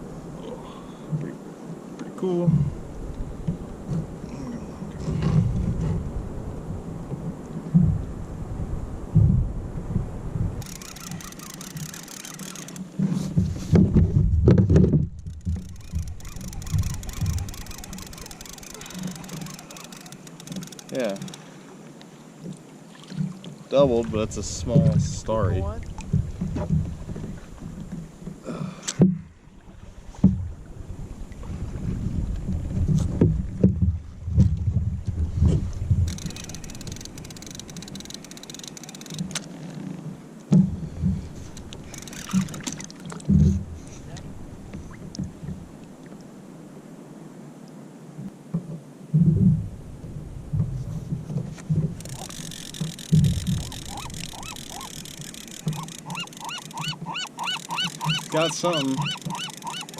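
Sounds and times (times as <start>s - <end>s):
wind buffeting microphone: 2.5s - 20.1s, 24.1s - 28.2s, 29.6s - 39.2s, 49.1s - 56.2s
birds honking calls: 10.6s - 12.8s, 15.6s - 21.5s, 53.5s - 59.9s.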